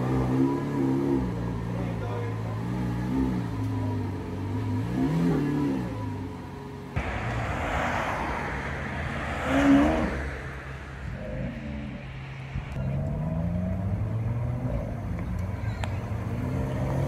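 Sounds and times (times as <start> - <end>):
car engine idling: 6.0 - 9.4, 10.1 - 17.0
car accelerating hard: 7.0 - 17.0.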